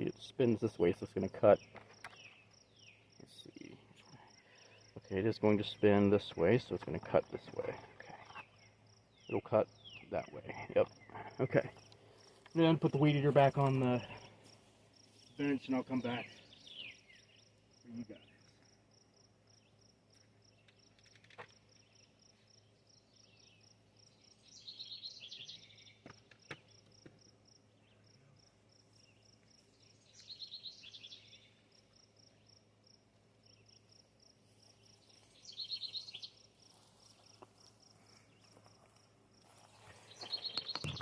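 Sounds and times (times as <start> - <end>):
insect chirping: 0.0 - 41.0
bird calling: 39.8 - 41.0.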